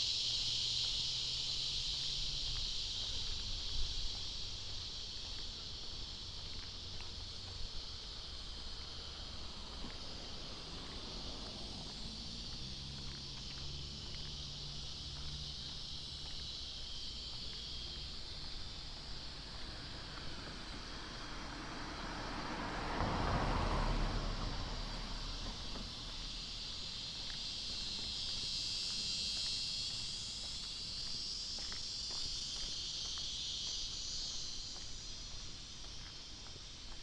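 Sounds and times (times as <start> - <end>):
faint low engine hum: 0.0 - 37.0
high-pitched hiss: 0.0 - 37.0
car driving past: 6.3 - 16.4, 17.9 - 30.4.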